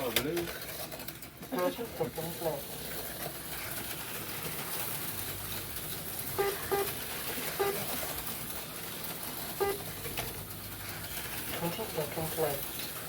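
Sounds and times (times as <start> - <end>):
low whir of slot cars: 0.0 - 13.0
short electronic beeps: 6.4 - 6.9.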